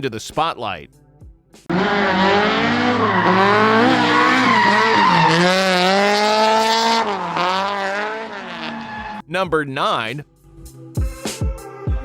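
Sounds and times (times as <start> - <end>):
car engine revving hard: 1.7 - 9.2
tyres squealing in a skid: 1.7 - 9.2.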